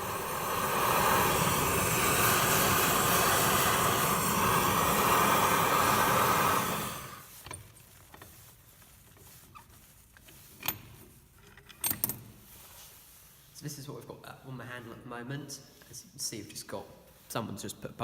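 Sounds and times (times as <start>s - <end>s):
forge rushing hiss: 0.0s - 7.3s.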